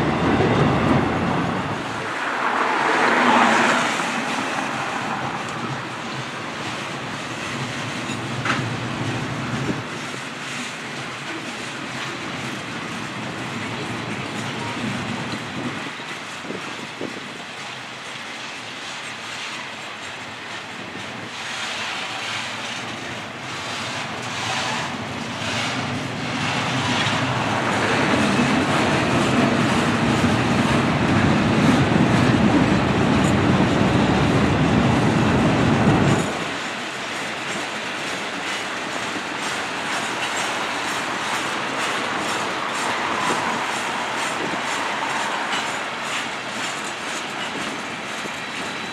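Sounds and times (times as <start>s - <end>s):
train wheels clattering over rail joints: 1.8s - 48.9s.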